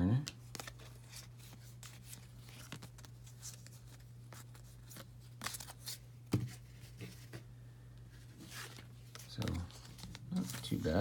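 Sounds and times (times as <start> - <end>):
trading cards rustling and ticking: 0.1 - 6.0, 8.5 - 11.0.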